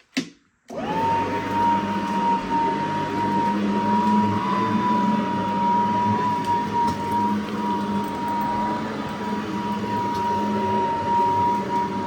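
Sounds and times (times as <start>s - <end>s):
stick vacuum motor whine: 0.7s - 12.0s.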